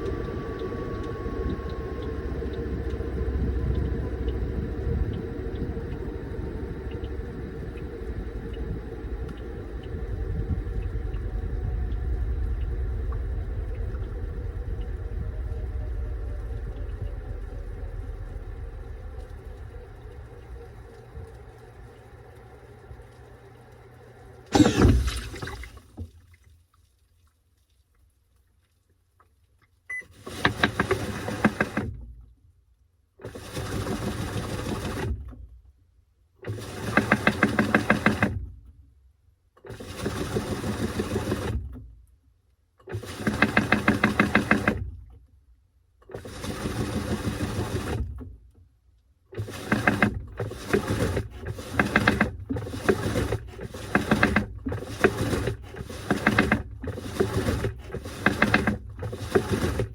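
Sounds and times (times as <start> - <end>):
washing machine motor turning load: 0.0 - 25.7, 39.7 - 41.7, 42.9 - 44.9, 46.1 - 48.3, 49.4 - 59.9
water sloshing: 24.5 - 27.1.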